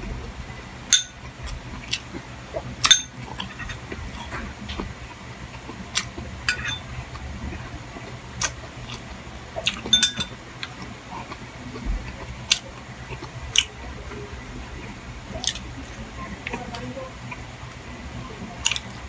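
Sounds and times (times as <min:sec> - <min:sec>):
low steady hum: 0:00.0 - 0:19.0
cutlery clinking on a plate: 0:00.9 - 0:01.2, 0:06.5 - 0:06.8, 0:09.9 - 0:10.4.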